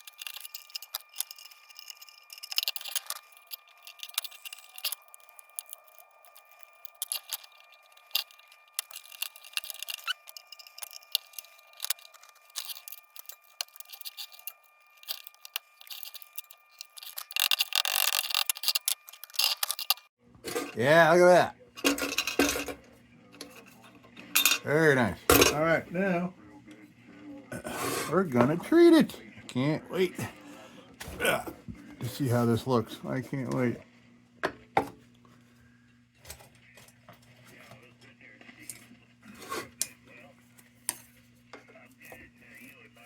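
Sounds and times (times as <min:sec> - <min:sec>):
metal tool scraping tin: 0:00.0 - 0:21.0.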